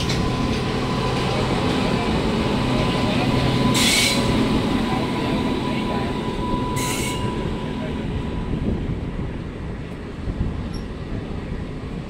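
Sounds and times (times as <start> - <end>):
locomotive on parallel track: 0.0 - 12.0
train rumbling at speed: 0.0 - 12.0.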